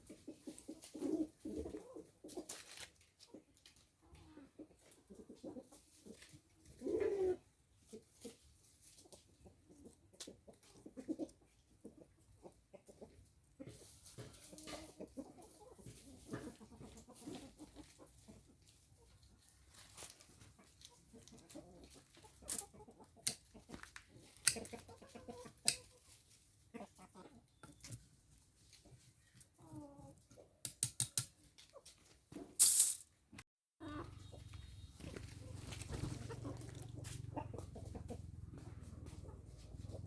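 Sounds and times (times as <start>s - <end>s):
chickens clucking softly: 0.0s - 30.6s, 33.8s - 40.0s.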